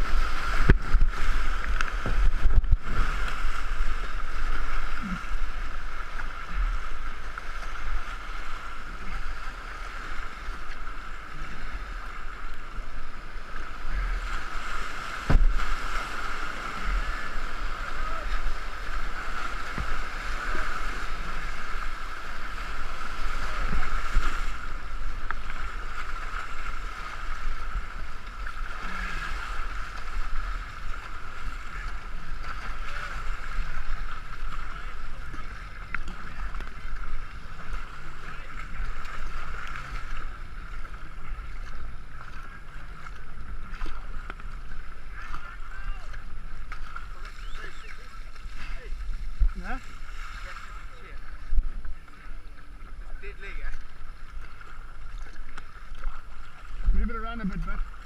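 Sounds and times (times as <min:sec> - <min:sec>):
wind on microphone: 0:00.0 - 0:09.7
river water rushing: 0:00.0 - 0:58.0.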